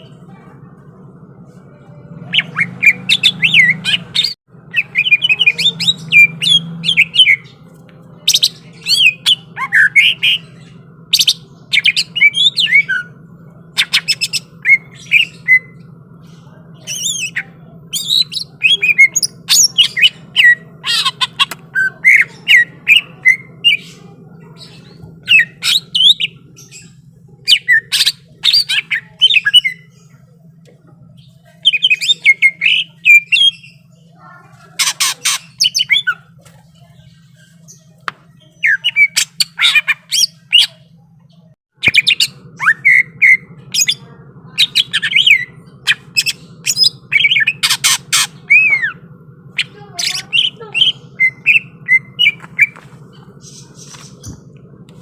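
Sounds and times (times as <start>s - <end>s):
steady low hum: 0.0s - 55.0s
bird singing whistles and chirps: 41.8s - 44.0s, 49.6s - 52.8s.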